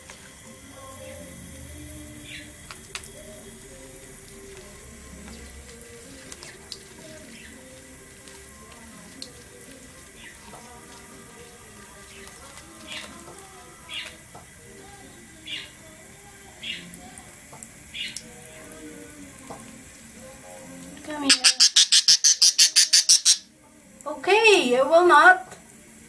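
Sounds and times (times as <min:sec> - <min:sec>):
tap water running: 0:00.0 - 0:26.0
budgie chirping: 0:21.2 - 0:23.5.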